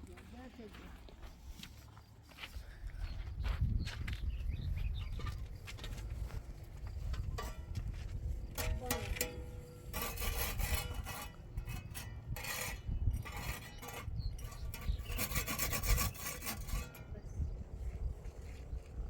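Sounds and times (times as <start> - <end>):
rough scraping strokes: 7.1 - 17.2.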